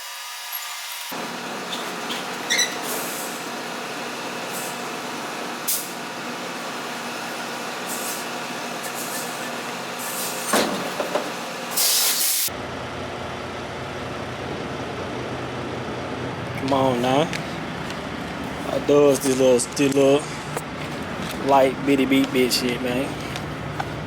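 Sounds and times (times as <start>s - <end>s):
truck engine and road noise: 1.1s - 24.0s
loud hiss of air: 2.8s - 3.5s, 5.6s - 6.0s, 7.8s - 9.4s, 10.0s - 10.6s, 11.7s - 12.5s.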